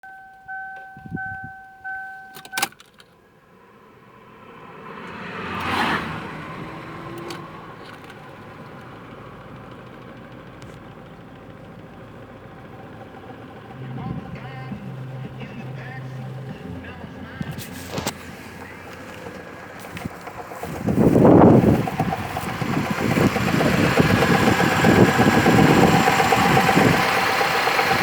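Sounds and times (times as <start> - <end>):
dashboard warning chime: 0.0 - 3.0, 13.7 - 20.0
ignition key click: 0.0 - 3.2, 7.1 - 8.3
car engine starting and idling: 0.0 - 28.0.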